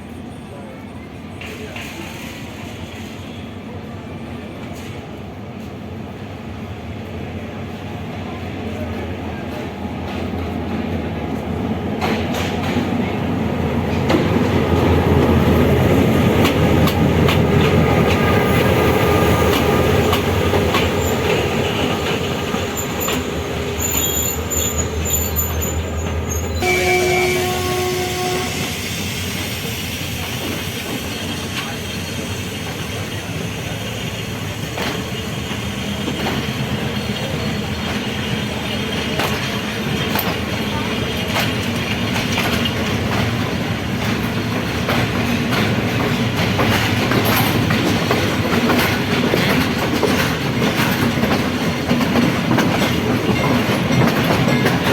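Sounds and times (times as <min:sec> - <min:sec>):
train wheels clattering: 0:09.5 - 0:54.9
high wheel squeal: 0:22.7 - 0:37.6
train horn blast: 0:26.5 - 0:29.0.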